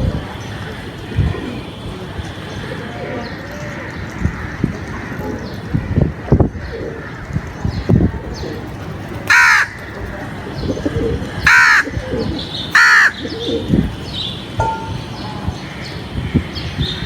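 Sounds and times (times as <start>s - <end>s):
background bird sounds: 0.0s - 17.0s
crow cawing: 9.3s - 9.8s, 11.5s - 12.0s, 12.7s - 13.4s.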